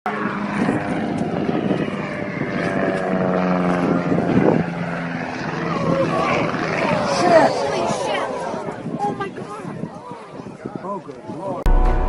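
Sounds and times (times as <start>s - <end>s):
aircraft engine drone: 0.1s - 8.9s.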